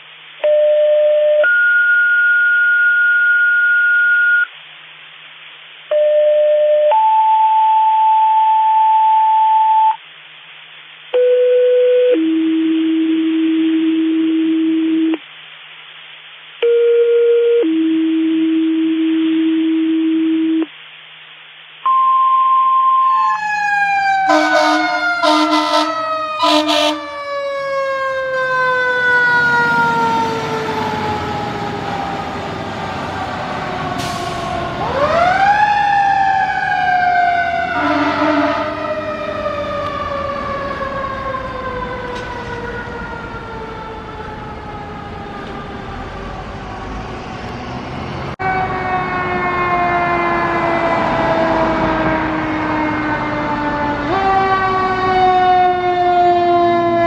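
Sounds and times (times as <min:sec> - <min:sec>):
radio dispatch alert tones: 0:00.4 - 0:04.5, 0:05.9 - 0:10.0, 0:21.9 - 0:28.6, 0:37.6 - 0:38.9
air horn blasts: 0:24.2 - 0:27.2, 0:37.7 - 0:38.8.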